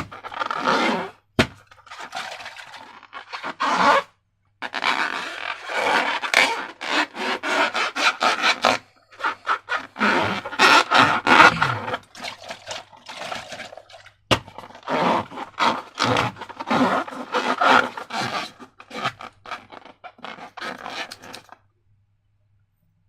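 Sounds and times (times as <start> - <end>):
slime scraping in a container: 0.0 - 21.6
slime squishing: 8.7 - 21.6.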